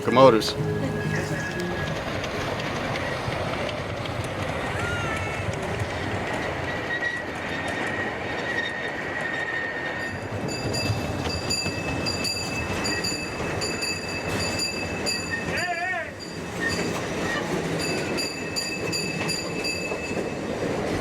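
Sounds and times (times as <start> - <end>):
train wheel squeal: 0.0 - 3.8, 4.5 - 21.0
train rail noise: 0.0 - 21.0.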